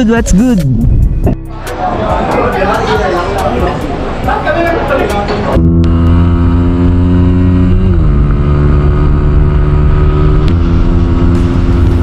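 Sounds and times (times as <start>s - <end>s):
motorcycle engine running: 5.6s - 12.0s.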